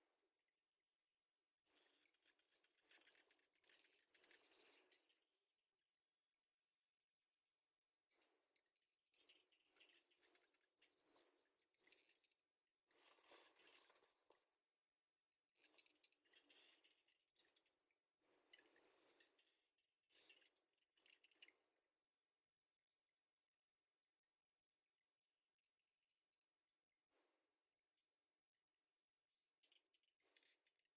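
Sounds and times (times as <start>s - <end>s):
small birds chirping: 1.6s - 5.5s, 8.0s - 14.6s, 15.5s - 21.8s, 29.6s - 30.9s.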